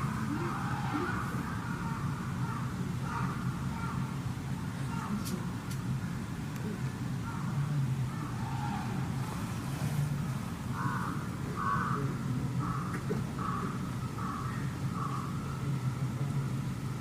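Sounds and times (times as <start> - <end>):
crow cawing: 0.0 - 4.2, 4.9 - 5.3, 7.2 - 9.5, 10.7 - 15.6
low background hum: 0.0 - 17.0.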